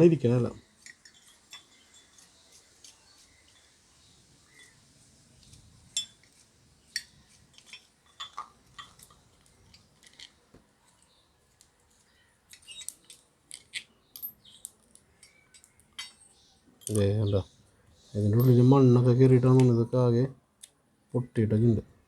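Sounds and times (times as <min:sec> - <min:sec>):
small metal parts clicking: 0:00.8 - 0:03.3, 0:07.0 - 0:17.1.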